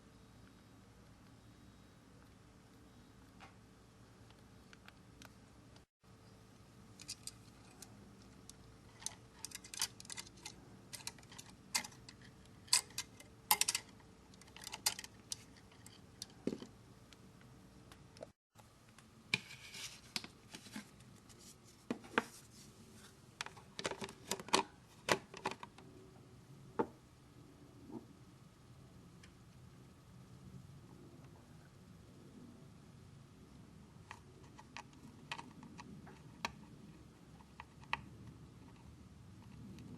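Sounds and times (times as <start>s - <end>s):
hand tools clicking and scraping: 7.0s - 16.6s.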